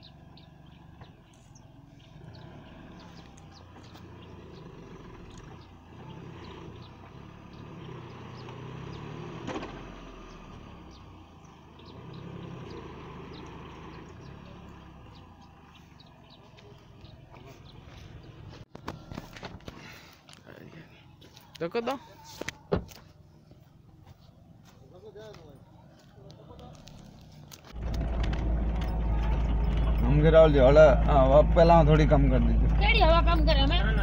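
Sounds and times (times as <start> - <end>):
diesel engine revving: 0.0 - 18.7, 26.5 - 34.0.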